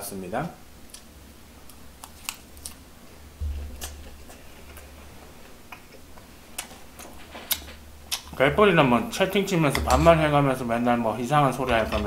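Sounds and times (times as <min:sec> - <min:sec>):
man chewing food: 0:00.8 - 0:08.4
low hum: 0:03.2 - 0:06.0.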